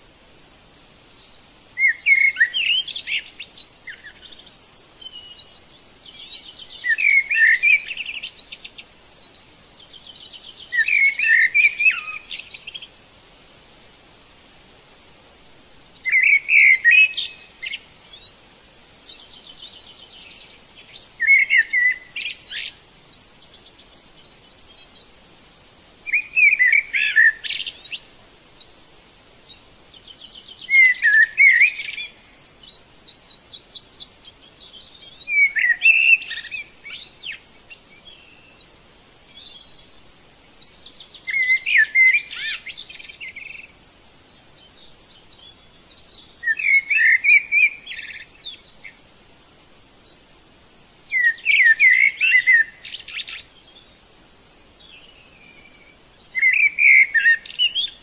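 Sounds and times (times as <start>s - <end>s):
faint bird chirps: 0.0s - 25.3s, 25.9s - 58.0s
songbird trilling: 1.7s - 13.0s, 16.0s - 18.4s, 19.1s - 25.0s, 26.1s - 28.8s, 29.5s - 33.7s, 34.6s - 39.9s, 40.5s - 44.0s, 44.8s - 49.0s, 50.9s - 53.9s, 54.8s - 58.0s.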